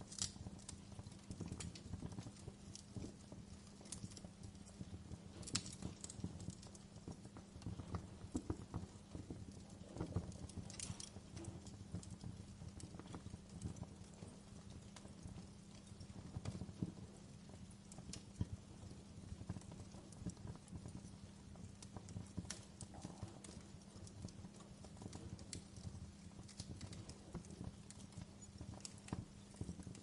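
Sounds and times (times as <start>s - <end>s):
wood fire crackling in fireplace: 0.0s - 30.0s.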